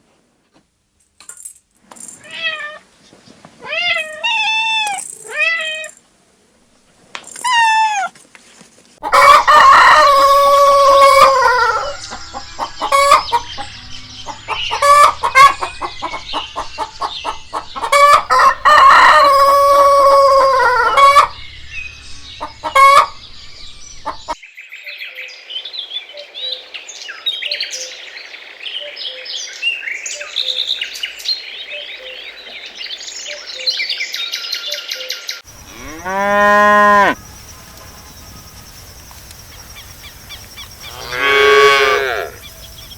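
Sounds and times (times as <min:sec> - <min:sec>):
rooster crowing: 0:09.0 - 0:15.4, 0:17.9 - 0:21.4, 0:40.8 - 0:42.8
hens clucking: 0:09.0 - 0:21.4, 0:22.4 - 0:23.3, 0:24.0 - 0:24.4.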